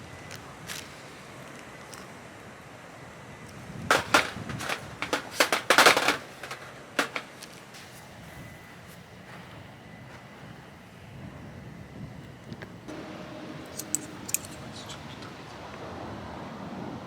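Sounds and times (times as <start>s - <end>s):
small objects clicking and knocking: 3.9s - 7.6s, 13.8s - 14.6s.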